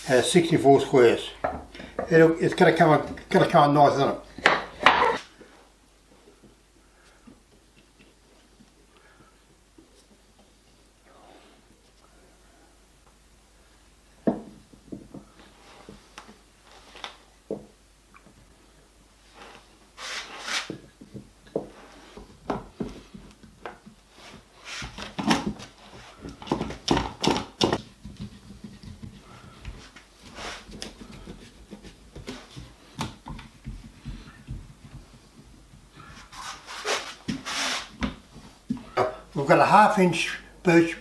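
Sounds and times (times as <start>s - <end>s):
wood scraping: 21.6s - 39.2s
wood knocking on wood: 26.3s - 29.8s.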